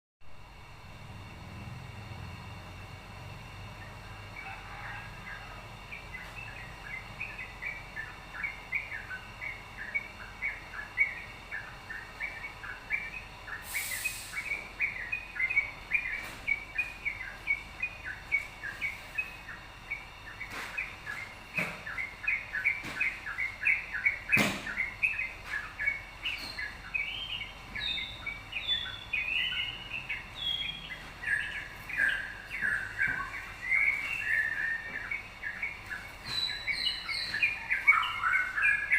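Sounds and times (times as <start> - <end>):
bird chirping: 3.8 - 38.9
brief hiss: 13.6 - 14.6.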